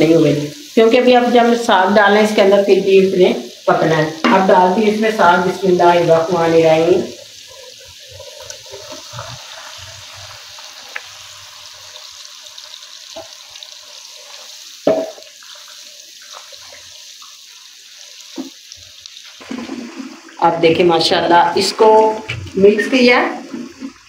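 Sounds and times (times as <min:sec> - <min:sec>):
masala sizzling in oil: 0:00.0 - 0:24.0
stirring with a wooden spatula: 0:07.4 - 0:10.6
utensil knocks: 0:14.8 - 0:15.2.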